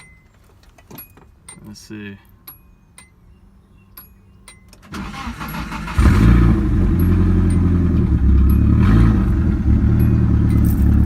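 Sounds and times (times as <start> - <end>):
engine starter cranking: 4.7 - 7.7
car engine running loudly: 5.5 - 11.0.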